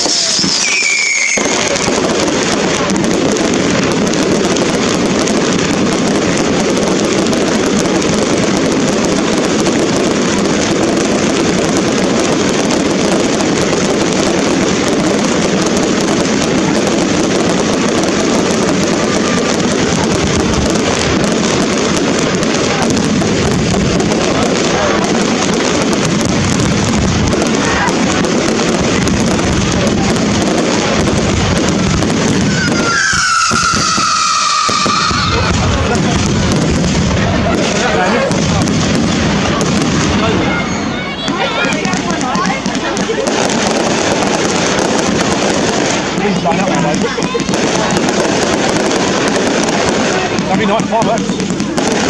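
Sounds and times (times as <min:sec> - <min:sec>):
firework whistling: 0:00.0 - 0:52.0
fireworks crackling and popping: 0:00.0 - 0:52.0.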